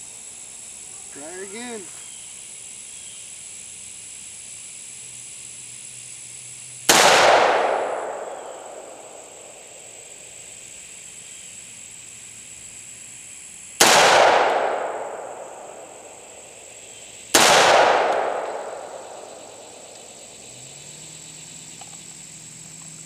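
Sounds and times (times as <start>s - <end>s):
pistol shots with echo: 6.9s - 9.9s, 13.8s - 16.6s, 17.3s - 20.1s.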